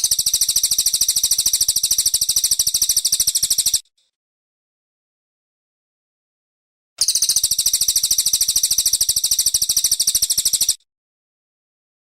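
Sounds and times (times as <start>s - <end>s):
bird singing high-pitched trill: 0.0s - 3.8s, 7.0s - 10.8s.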